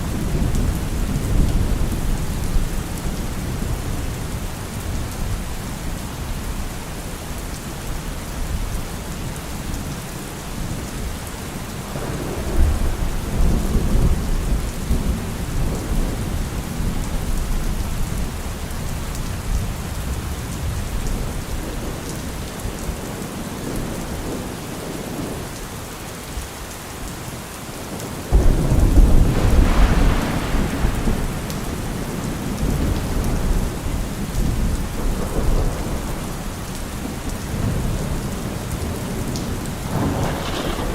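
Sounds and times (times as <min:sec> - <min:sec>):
thunder rumbling: 0:00.0 - 0:05.4, 0:11.9 - 0:18.4, 0:28.2 - 0:40.9
heavy rain on a car roof: 0:00.0 - 0:40.9
loud thunderclap: 0:28.3 - 0:36.4, 0:39.8 - 0:40.9.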